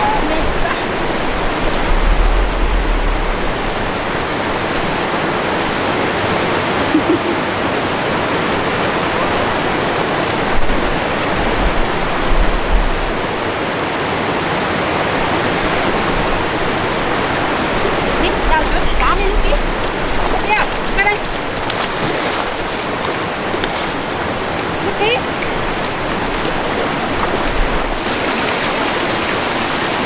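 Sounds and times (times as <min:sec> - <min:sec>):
low rumbles: 0:00.0 - 0:05.8, 0:11.4 - 0:13.4, 0:15.9 - 0:21.6
rushing stream water: 0:00.0 - 0:30.0.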